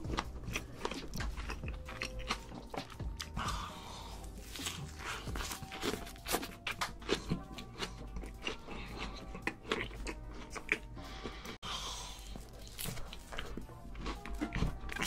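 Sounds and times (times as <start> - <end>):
person chewing with wet smacks: 0.0 - 3.5, 4.4 - 11.4
background music: 0.0 - 15.0.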